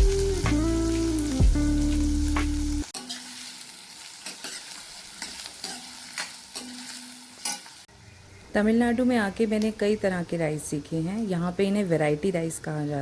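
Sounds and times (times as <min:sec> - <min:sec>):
food sizzling in a pan: 0:00.0 - 0:08.4.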